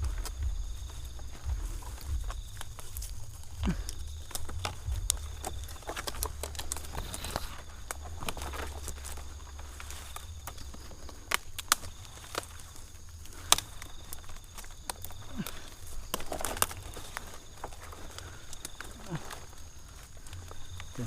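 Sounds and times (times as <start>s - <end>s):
fronds rustling: 0.0s - 21.0s
knocks and cracks on palm trunk: 0.0s - 21.0s.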